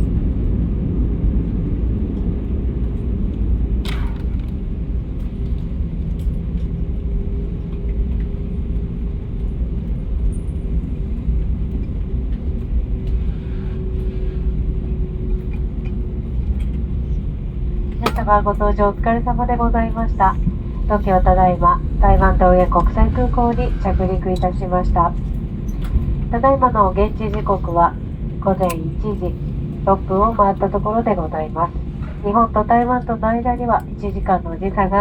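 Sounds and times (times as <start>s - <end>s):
jet cabin low rumble: 0.0s - 35.0s
faint steady whine: 13.0s - 35.0s.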